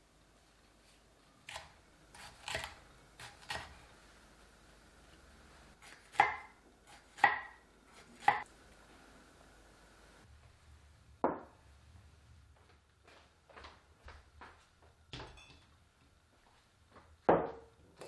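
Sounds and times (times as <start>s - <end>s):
knife cutting on cutting board: 1.5s - 3.9s.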